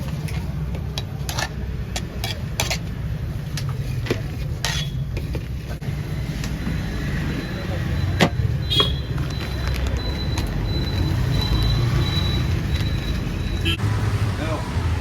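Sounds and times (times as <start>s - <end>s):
metal dishes clinking: 0.0s - 5.5s.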